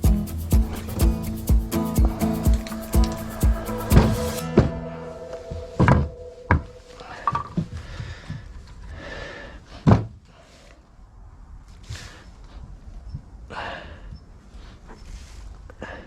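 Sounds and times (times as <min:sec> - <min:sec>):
background music: 0:00.0 - 0:07.5.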